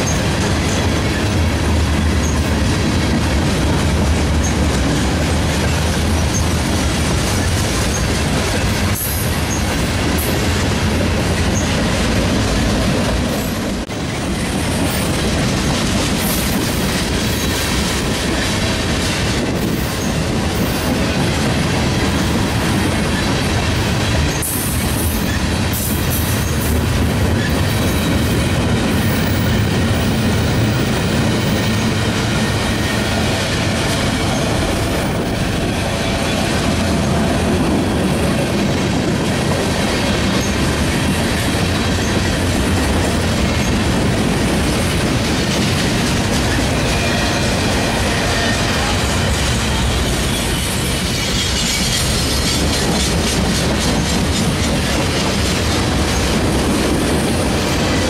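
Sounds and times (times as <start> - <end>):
clickety-clack over rail joints: 0.0 - 58.0
train wheels rumbling on rail: 0.0 - 58.0
high wheel squeals: 49.8 - 52.8.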